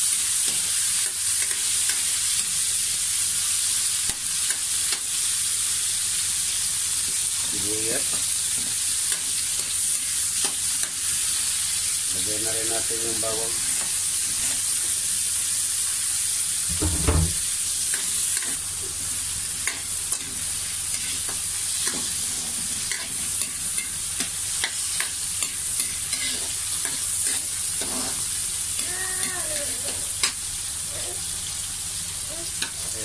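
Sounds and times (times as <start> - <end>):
onion and garlic sizzling in oil: 0.0 - 33.0
ladle scraping a pan: 27.8 - 28.2.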